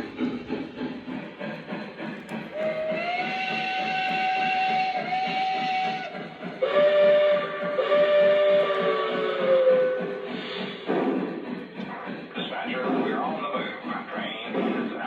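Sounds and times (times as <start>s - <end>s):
train chuffing and clattering: 0.0s - 15.0s
model steam locomotive whistle: 2.6s - 10.3s.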